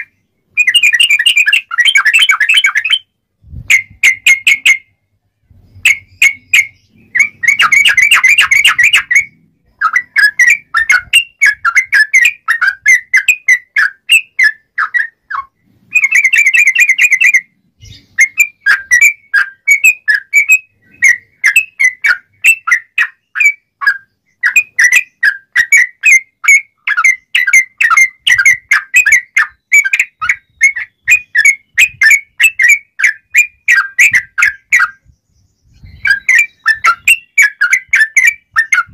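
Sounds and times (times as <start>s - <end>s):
bird singing chattering phrase: 0.0s - 3.1s, 3.7s - 38.9s
bird rattling trills: 5.8s - 14.0s.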